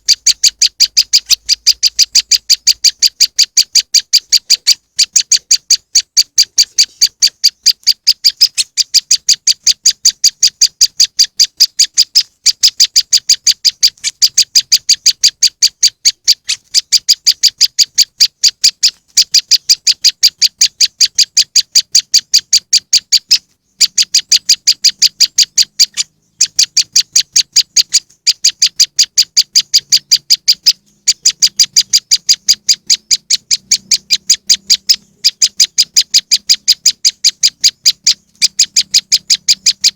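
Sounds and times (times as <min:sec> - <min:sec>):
bird calling in sharp high chips: 0:00.0 - 0:39.9.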